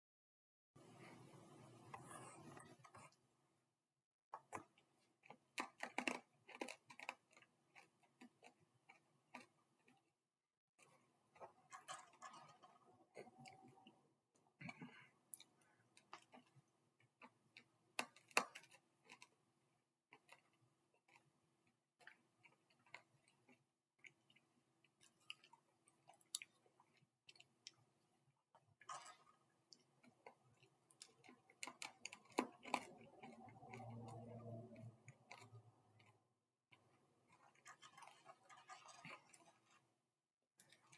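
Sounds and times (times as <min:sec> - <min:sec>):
crunching hard candies: 0:05.3 - 0:10.0.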